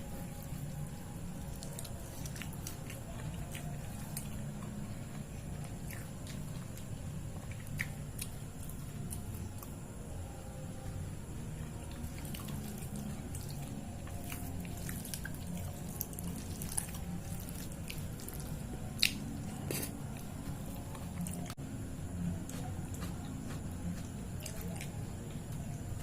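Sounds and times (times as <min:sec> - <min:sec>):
wet chewing: 0:00.0 - 0:09.8, 0:11.6 - 0:21.6, 0:22.3 - 0:25.6
steady low hum: 0:00.0 - 0:26.0
mouth clicks and smacks: 0:07.4 - 0:08.4, 0:19.0 - 0:20.0.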